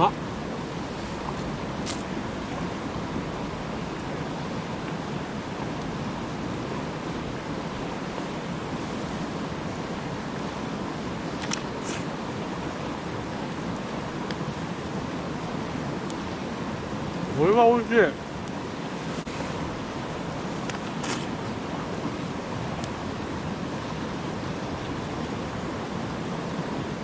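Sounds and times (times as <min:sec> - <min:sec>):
campfire pops: 0:01.4 - 0:02.3, 0:11.3 - 0:12.1, 0:20.6 - 0:21.5, 0:22.7 - 0:23.0.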